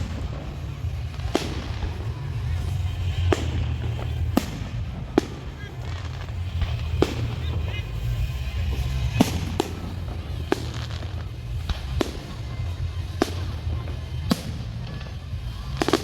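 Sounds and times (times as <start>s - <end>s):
fireworks bangs: 0.0s - 16.0s
steady low rumble: 0.0s - 16.0s.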